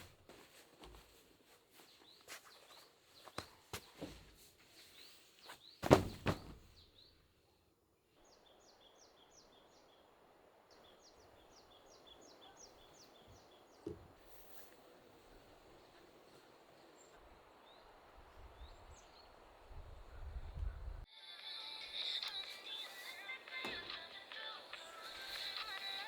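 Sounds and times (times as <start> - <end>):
faint outdoor background: 0.0 - 26.0
bird chirping: 4.8 - 20.8
loud thump: 5.8 - 6.7.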